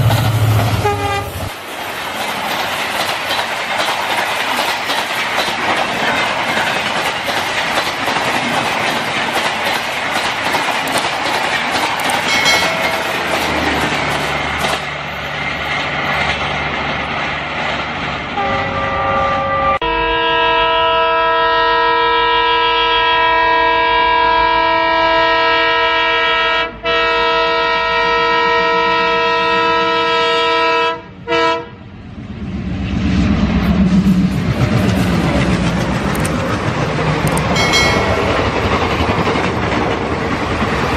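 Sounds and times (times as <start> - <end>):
train clattering on rails: 0.0 - 18.8, 32.8 - 40.9
multi-tone train horn: 0.4 - 1.6, 18.4 - 31.9.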